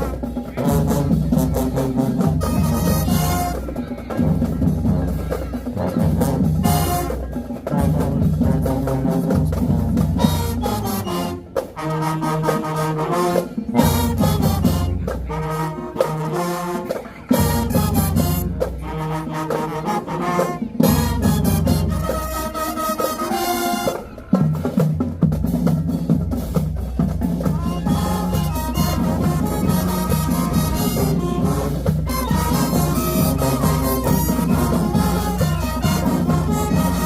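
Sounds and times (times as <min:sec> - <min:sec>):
brass chords: 0:00.0 - 0:24.8, 0:27.2 - 0:37.0
bass and snare drums: 0:00.0 - 0:37.0.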